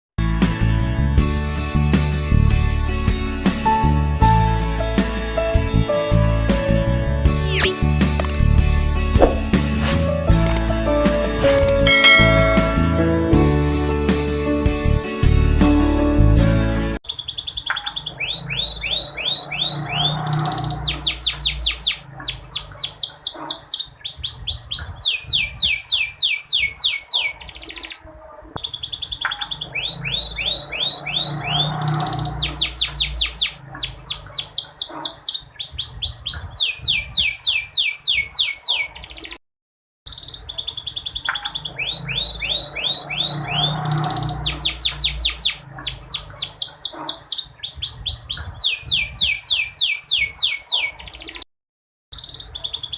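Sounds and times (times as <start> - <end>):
canary singing trills: 17.0 - 28.0, 28.6 - 39.4, 40.1 - 51.4, 52.2 - 52.9.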